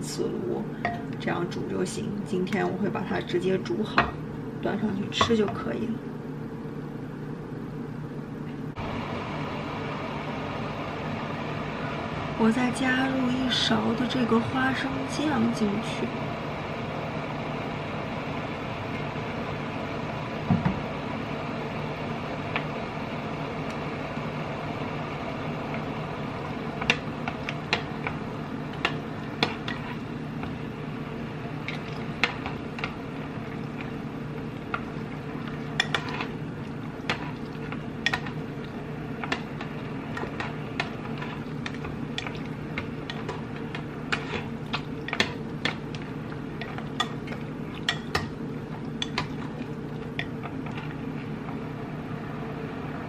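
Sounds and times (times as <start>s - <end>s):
steady hum: 0.0s - 53.0s
spoon scraping a cooking pot: 35.6s - 36.4s.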